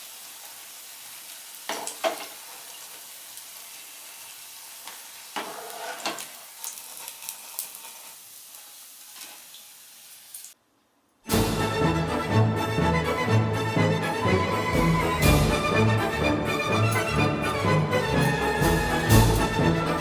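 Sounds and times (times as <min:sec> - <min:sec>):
oil sizzling in a pan: 0:00.0 - 0:10.6.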